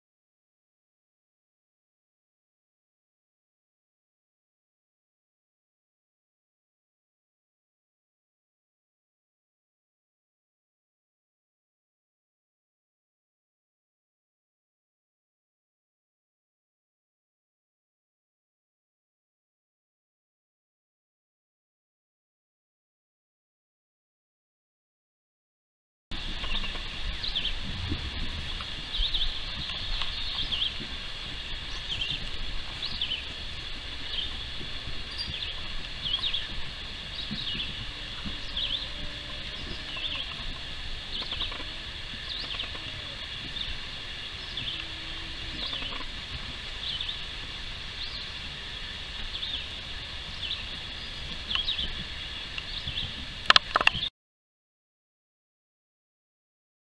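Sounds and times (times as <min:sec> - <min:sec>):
distant birdsong: 0:26.1 - 0:54.1
short high bird calls: 0:26.4 - 0:30.8, 0:34.0 - 0:46.2.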